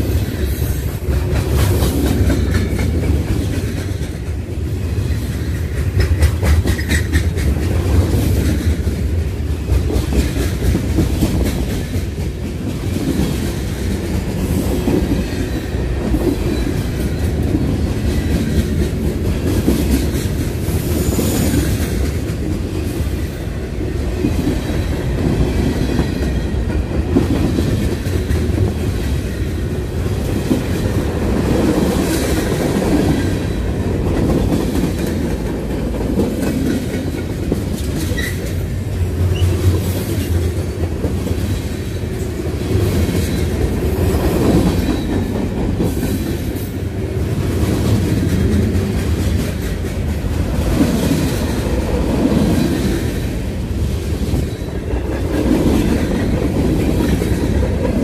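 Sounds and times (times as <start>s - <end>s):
train wheels rumbling on rails: 0.0s - 58.0s
wheels clickety-clack on joints: 5.4s - 15.2s.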